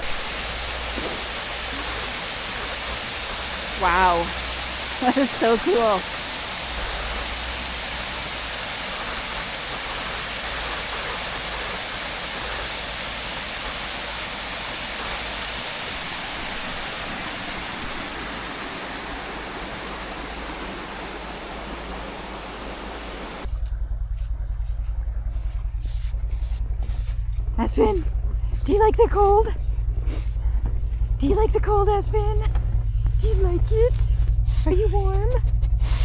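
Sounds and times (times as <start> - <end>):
water rushing over waterfall: 0.0 - 23.5
pulsing low rumble: 0.0 - 36.0.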